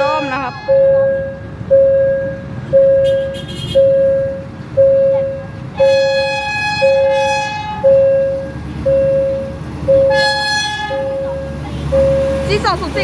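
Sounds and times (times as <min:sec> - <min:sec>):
train horn: 0:05.8 - 0:07.8, 0:10.1 - 0:11.2.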